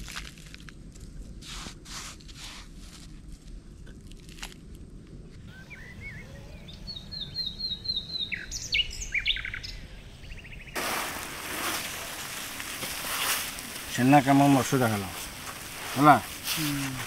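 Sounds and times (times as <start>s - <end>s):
wild birds singing: 5.4s - 17.0s
steady hiss: 10.7s - 17.0s.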